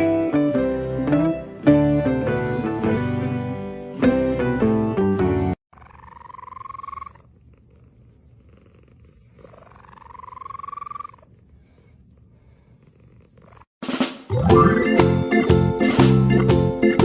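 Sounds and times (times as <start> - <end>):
cat purring: 5.8 - 13.7.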